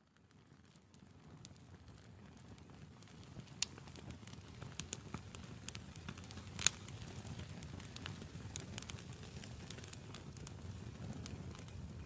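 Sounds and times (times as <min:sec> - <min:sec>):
wood fire crackling and popping: 0:00.0 - 0:12.0
rush of flame: 0:03.0 - 0:12.0.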